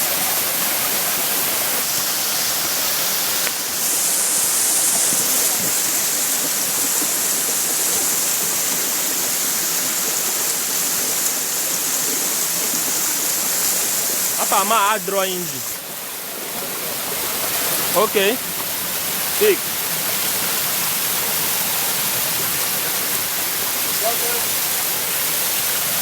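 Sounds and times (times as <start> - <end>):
waterfall rushing over rock: 0.0 - 26.0.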